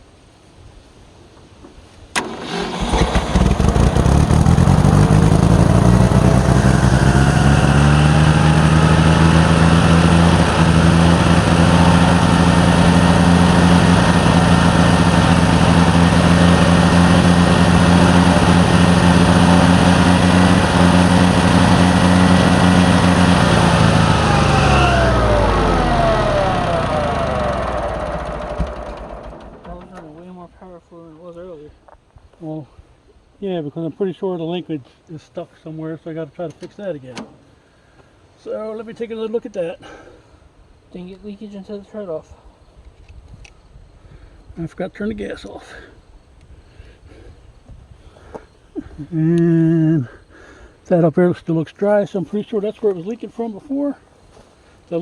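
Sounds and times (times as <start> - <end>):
tractor engine running: 2.2 - 30.3.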